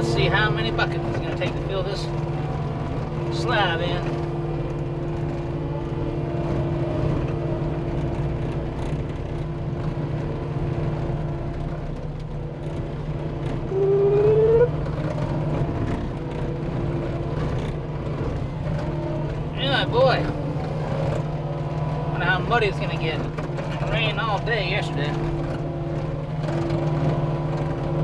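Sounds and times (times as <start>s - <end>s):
diesel engine running: 0.0s - 28.0s
rising whine: 13.7s - 14.8s.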